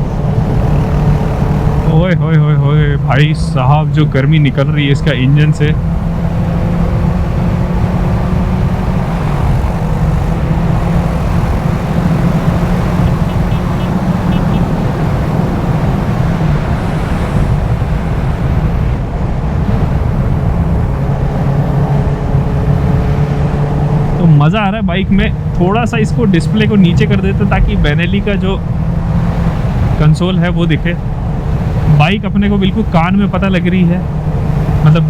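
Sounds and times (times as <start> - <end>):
motorcycle engine running: 0.0 - 2.2, 5.7 - 24.5.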